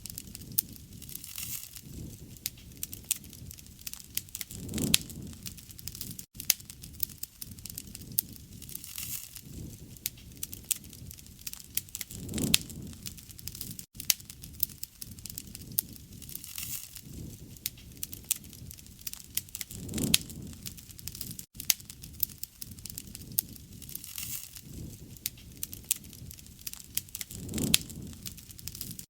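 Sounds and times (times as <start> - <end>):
wood fire crackling: 0.0 - 29.0.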